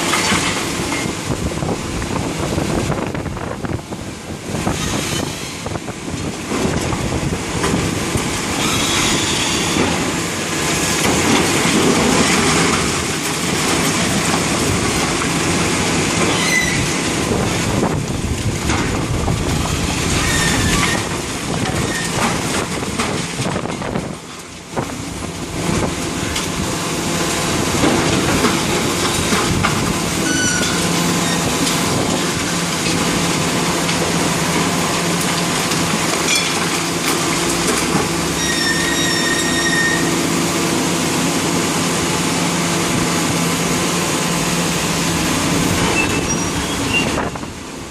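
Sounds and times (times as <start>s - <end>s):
demolition machinery rumbling: 0.0s - 47.9s
high metallic squeals: 4.7s - 5.8s, 8.6s - 9.8s, 16.3s - 17.0s, 20.2s - 21.1s, 30.2s - 31.6s, 38.3s - 40.3s, 45.8s - 47.5s.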